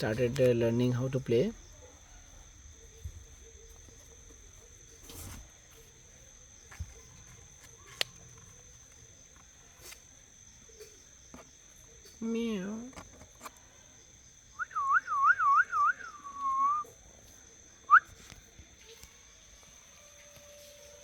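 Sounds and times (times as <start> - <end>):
high-pitched insect trill: 0.0 - 21.0.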